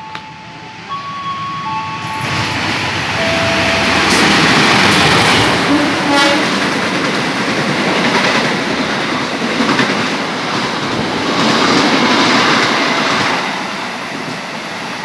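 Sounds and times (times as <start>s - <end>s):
train rushing past: 0.0s - 15.0s.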